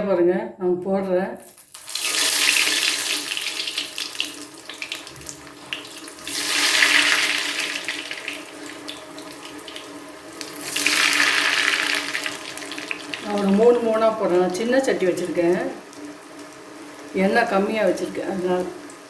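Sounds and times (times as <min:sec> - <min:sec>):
oil crackling and popping: 0:01.4 - 0:14.0, 0:15.2 - 0:17.1
rolls sizzling in hot oil: 0:01.4 - 0:19.0.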